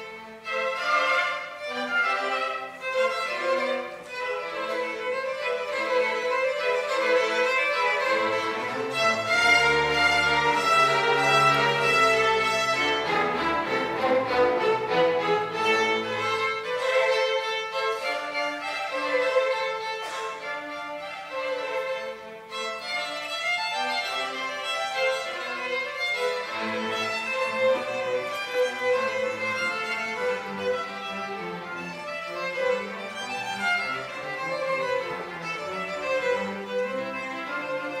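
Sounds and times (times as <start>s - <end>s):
low sustained accompaniment notes: 0.0s - 19.8s
violin melody: 0.0s - 38.0s.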